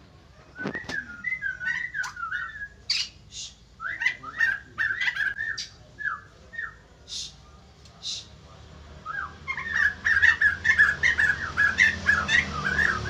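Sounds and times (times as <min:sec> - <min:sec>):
bird harsh chirps: 0:00.4 - 0:08.4, 0:09.0 - 0:13.0
bird whistled notes: 0:00.5 - 0:06.8.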